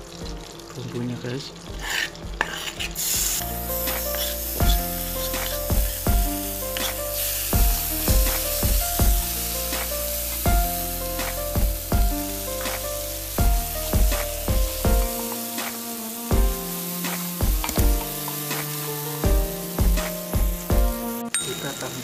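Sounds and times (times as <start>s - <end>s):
background music with beat: 0.0s - 0.8s, 1.6s - 21.4s
paste sizzling in hot oil: 0.0s - 22.0s
spatula stirring in pan: 1.6s - 6.1s.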